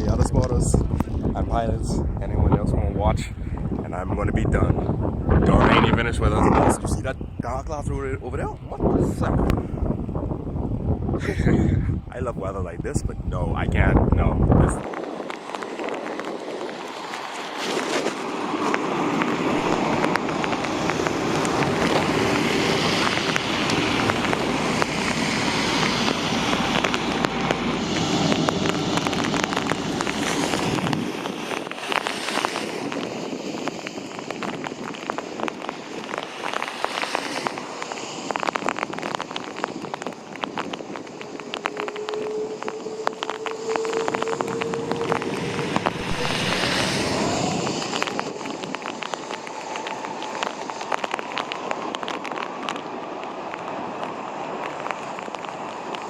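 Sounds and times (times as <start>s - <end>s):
rain: 0.0s - 2.1s, 3.2s - 56.0s
wind gusting on microphone: 0.0s - 56.0s
raindrops crackling and tapping: 14.6s - 56.0s
faint rising whine: 40.4s - 51.2s.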